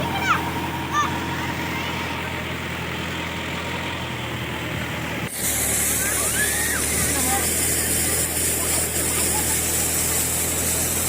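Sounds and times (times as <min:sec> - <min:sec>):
tractor diesel engine running: 0:00.0 - 0:11.0
high hiss: 0:05.3 - 0:11.0.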